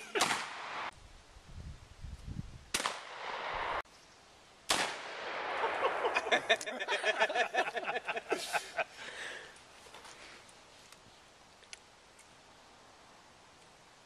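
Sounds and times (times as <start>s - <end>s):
gunshots echoing: 0.1s - 0.9s, 2.7s - 3.8s, 4.7s - 6.6s.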